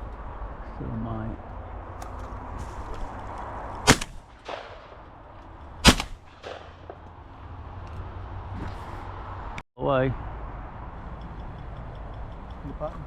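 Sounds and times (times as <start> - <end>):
shotgun shots with echo: 3.9 - 5.0, 5.8 - 7.0.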